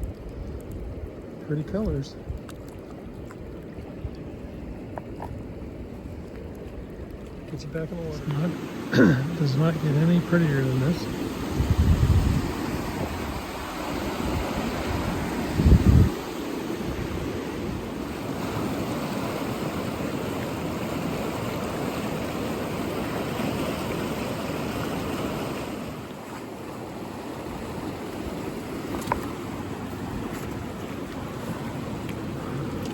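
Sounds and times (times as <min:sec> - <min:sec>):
wind buffeting microphone: 0:00.0 - 0:25.8
river rushing: 0:07.5 - 0:32.9.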